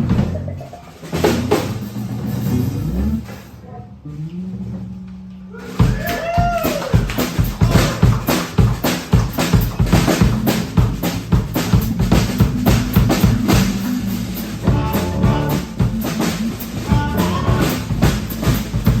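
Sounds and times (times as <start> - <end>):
drum kit beat: 0.0 - 3.2, 5.6 - 19.0
live band playing: 0.0 - 3.4, 5.6 - 19.0
higher melodic notes: 9.4 - 19.0.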